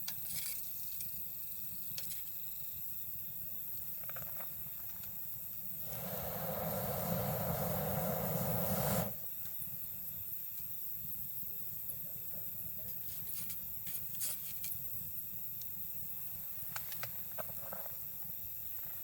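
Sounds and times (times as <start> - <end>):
night insects chirring: 0.1 - 19.0
loud rushing hiss: 5.7 - 9.3
campfire wood crackling: 5.8 - 9.2.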